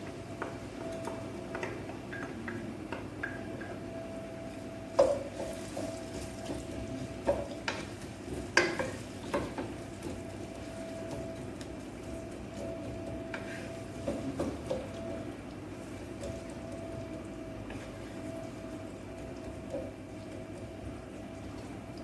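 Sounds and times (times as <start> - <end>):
utensil stirring in a frying pan: 4.9 - 22.0.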